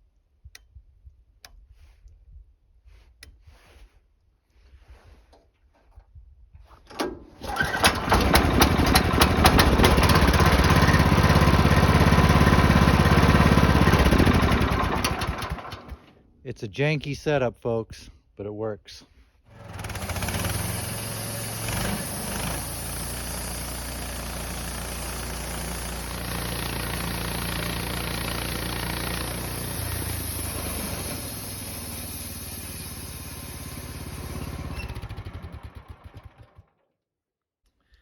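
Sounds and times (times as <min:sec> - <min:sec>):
sawmill gas engine running: 0:07.4 - 0:16.1, 0:19.5 - 0:36.8.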